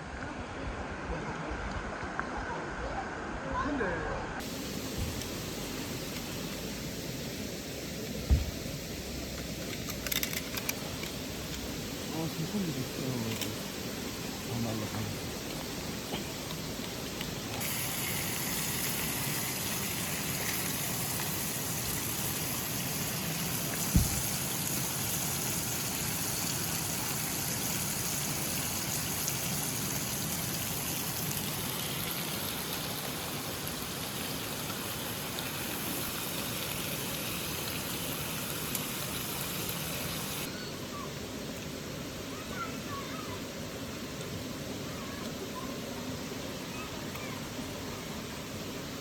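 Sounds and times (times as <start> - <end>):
stream water flowing: 0.0 - 49.0
sharp thump: 23.9 - 24.2.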